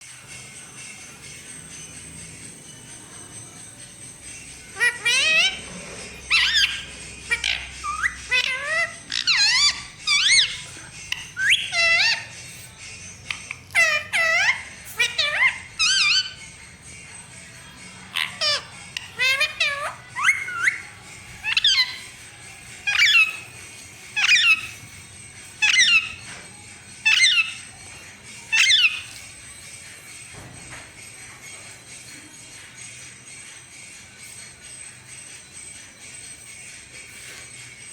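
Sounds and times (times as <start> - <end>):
parrot calling: 0.8 - 37.9.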